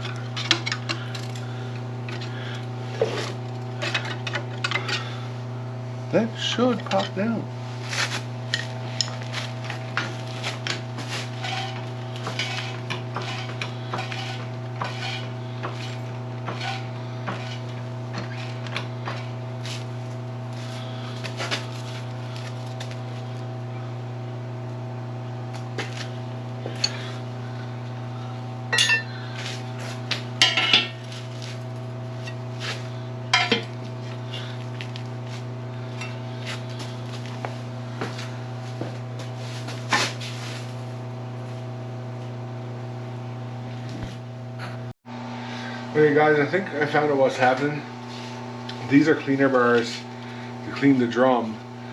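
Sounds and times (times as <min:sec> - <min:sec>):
steady low hum: 0:00.0 - 0:51.9
metal tools clinking and knocking: 0:00.1 - 0:01.4, 0:28.7 - 0:29.1, 0:30.4 - 0:30.9.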